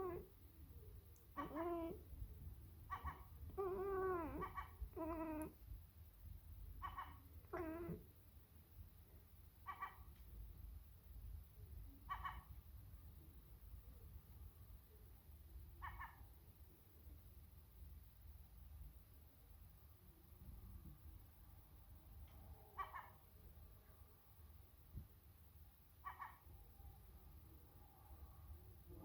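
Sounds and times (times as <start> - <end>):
cat meowing and chattering: 0.0 - 0.3, 1.3 - 2.2, 2.9 - 5.6, 6.8 - 8.1.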